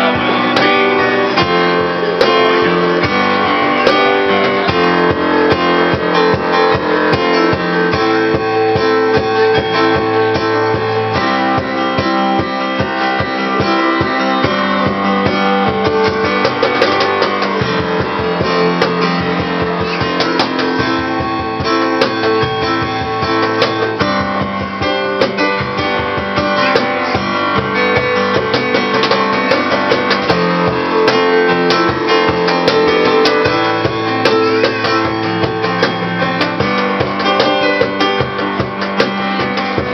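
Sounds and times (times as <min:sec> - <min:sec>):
cajon hand-struck rhythm: 0:00.0 - 0:39.9
guitar strumming chords: 0:00.0 - 0:39.9.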